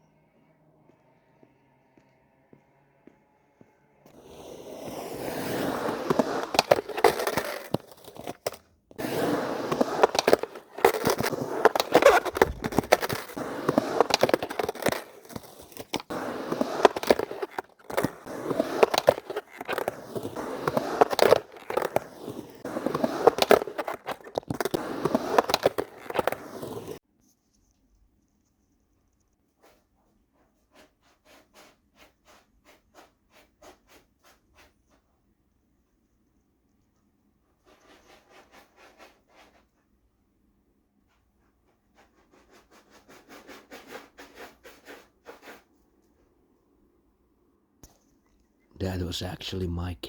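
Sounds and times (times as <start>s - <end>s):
cat digging in litter: 9.0s - 27.0s.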